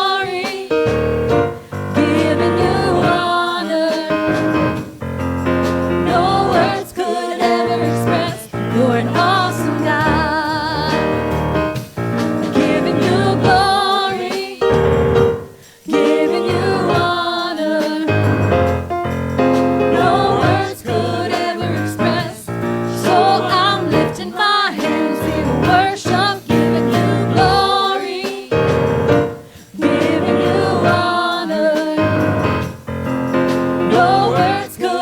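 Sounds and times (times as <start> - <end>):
singers with vibrato: 0.0 - 5.0, 5.8 - 11.4, 12.1 - 18.7, 19.4 - 32.5, 33.4 - 35.0
piano chords: 0.0 - 35.0
bass: 0.9 - 3.3, 4.3 - 6.8, 7.7 - 13.8, 14.7 - 15.5, 18.1 - 24.2, 25.2 - 27.7, 28.6 - 31.1, 32.0 - 34.7.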